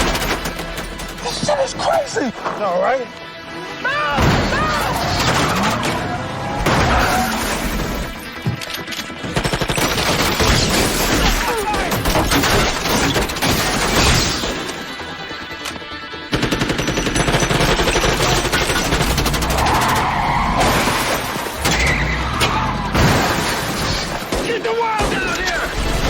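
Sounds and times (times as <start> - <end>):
background music: 0.0 - 26.0
rapid automatic gunfire: 9.1 - 14.4, 16.1 - 20.0.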